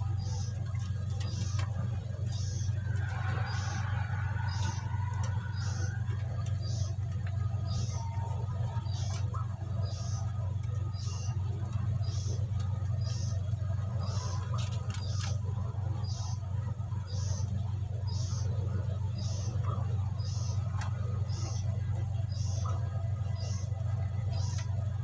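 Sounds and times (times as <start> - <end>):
steady low hum: 0.0 - 25.0
faint clicks: 0.2 - 15.4.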